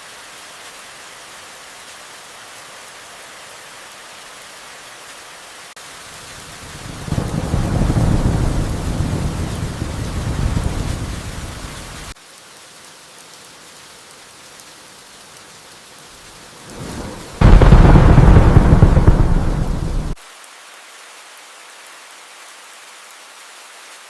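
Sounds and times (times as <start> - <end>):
steady rain: 0.0 - 24.0
thunder rumbling: 6.7 - 12.1, 16.7 - 20.2.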